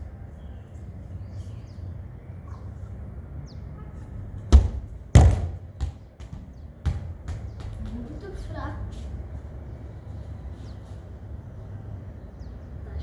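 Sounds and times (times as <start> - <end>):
ball thudding: 4.5 - 7.8.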